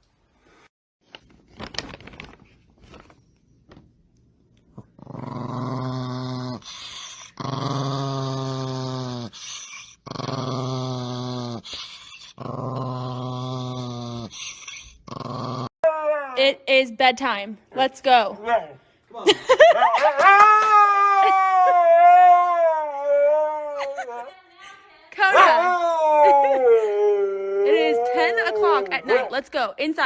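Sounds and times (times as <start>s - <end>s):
dog growling: 4.8s - 16.4s.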